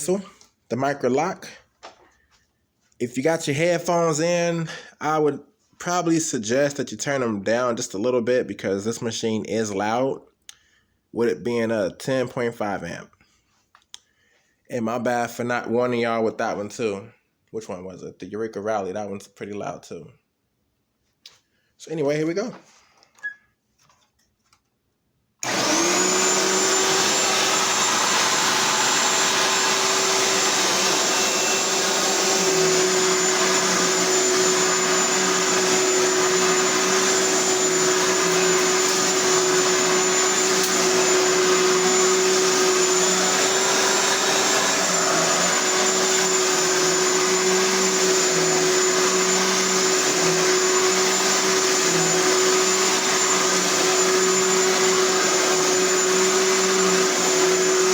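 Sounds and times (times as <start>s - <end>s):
vacuum cleaner motor whining: 25.4s - 57.9s.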